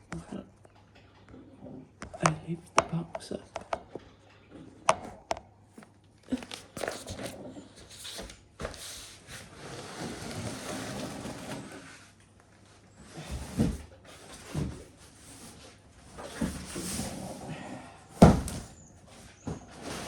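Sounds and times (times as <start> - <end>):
cardboard scraping and rustling: 6.3 - 12.2, 13.0 - 20.0.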